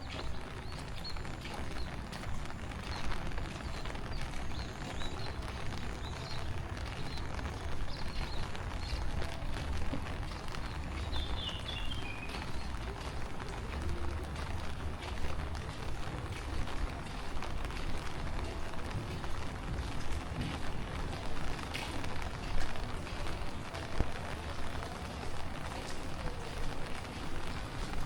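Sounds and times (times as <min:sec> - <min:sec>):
small birds chirping: 0:00.0 - 0:18.1
rain pattering: 0:00.0 - 0:28.0.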